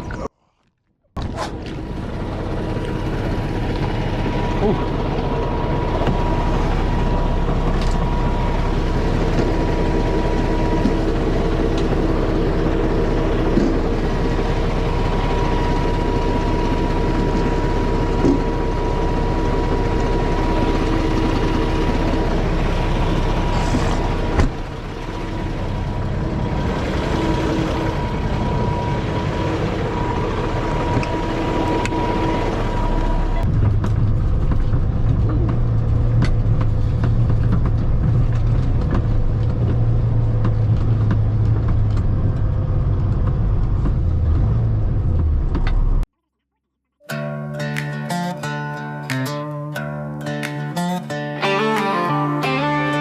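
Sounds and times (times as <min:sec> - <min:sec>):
diesel truck engine running: 0:01.2 - 0:46.1
thin steady whine: 0:01.9 - 0:33.5.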